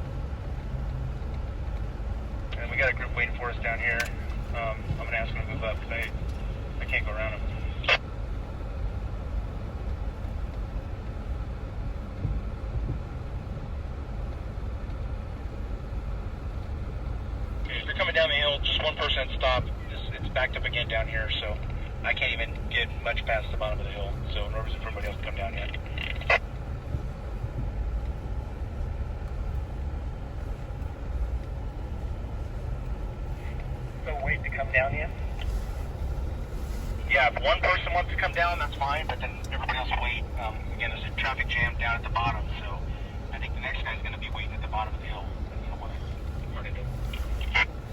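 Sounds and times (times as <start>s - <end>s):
car engine rumbling: 0.0s - 47.9s.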